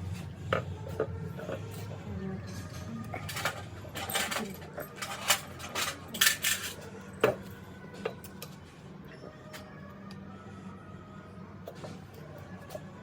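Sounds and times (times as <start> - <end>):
small metal parts clinking: 3.2 - 6.9.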